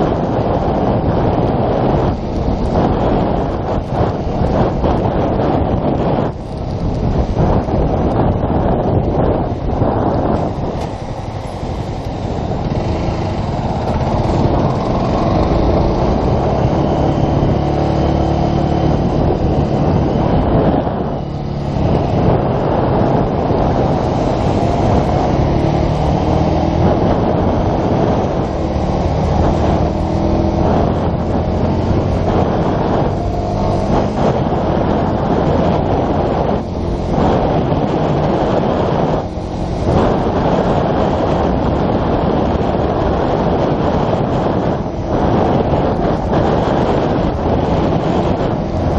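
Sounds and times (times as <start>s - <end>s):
motorcycle engine running: 0.0s - 48.9s
wind noise: 0.0s - 48.9s.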